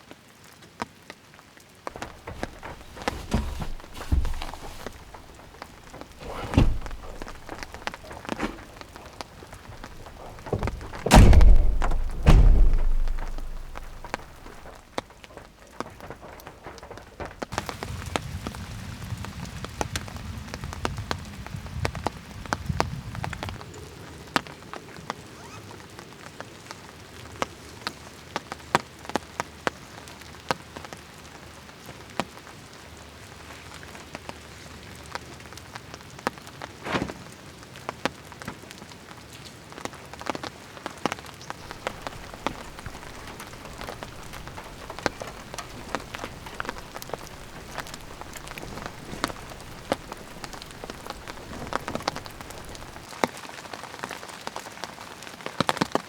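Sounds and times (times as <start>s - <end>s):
rain falling: 0.0s - 56.0s
heavy low thuds: 2.0s - 14.8s, 41.6s - 53.0s
raindrops ticking on a surface: 11.8s - 25.6s, 37.4s - 56.0s.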